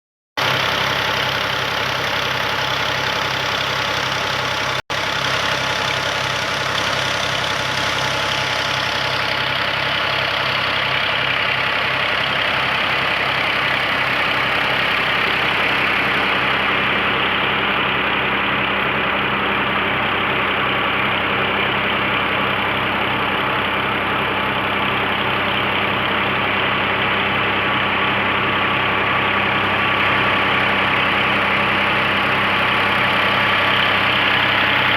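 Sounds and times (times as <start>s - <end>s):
tractor engine running: 0.4s - 34.9s.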